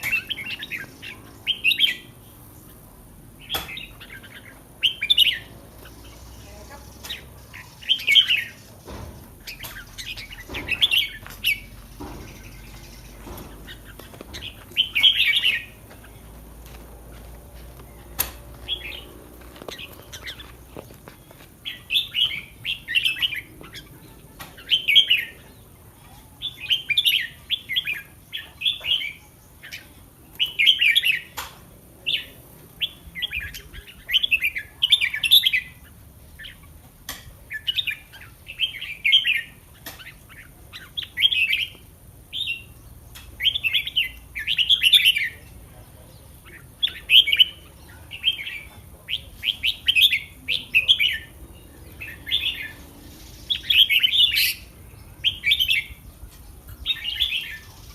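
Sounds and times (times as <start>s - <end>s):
bulbul singing: 0.0s - 57.9s.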